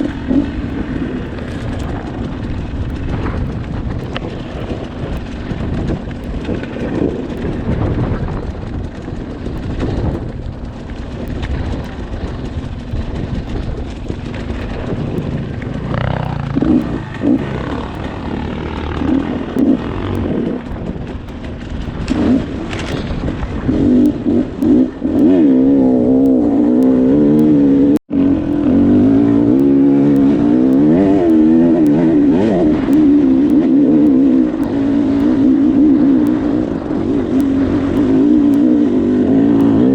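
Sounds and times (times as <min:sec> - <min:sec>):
dirt bike engine revving: 0:00.0 - 0:03.5, 0:14.1 - 0:39.9.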